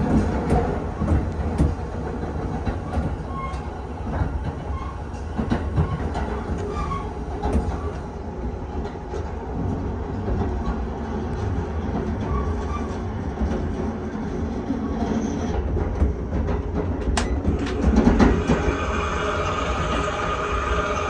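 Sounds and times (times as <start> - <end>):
train running gear rumble: 0.0 - 21.0
clicks squeaks and rattles: 2.7 - 3.7, 4.6 - 8.0, 12.0 - 13.8.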